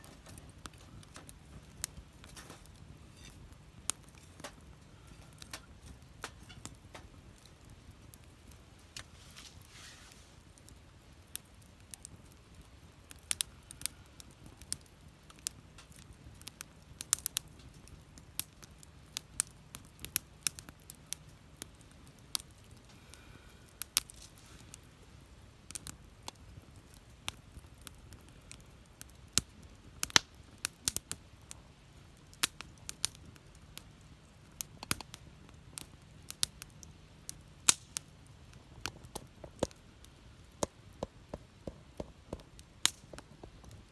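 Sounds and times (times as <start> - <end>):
wood fire crackling and popping: 0.0 - 43.9.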